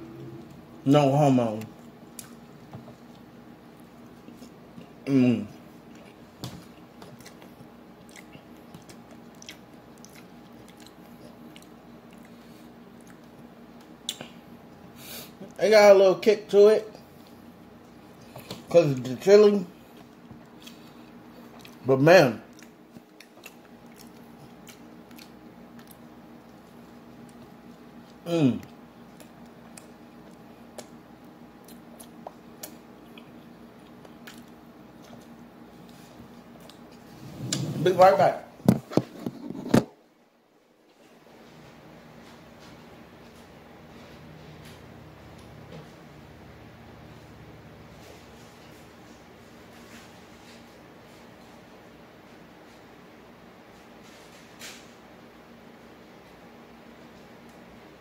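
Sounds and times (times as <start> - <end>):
low steady hum: 0.0 - 58.0
man chewing food: 1.6 - 15.6, 17.0 - 19.1, 19.8 - 21.8, 22.5 - 37.2
faint crunches and mouth clicks: 3.9 - 14.4, 19.9 - 21.8, 22.5 - 37.1.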